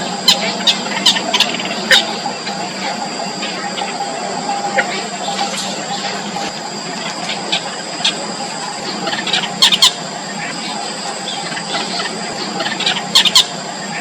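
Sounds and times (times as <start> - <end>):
constant high-pitched tone: 0.0 - 14.0
loud sharp bird calls: 0.0 - 14.0
nestling birds squeaking: 0.0 - 14.0.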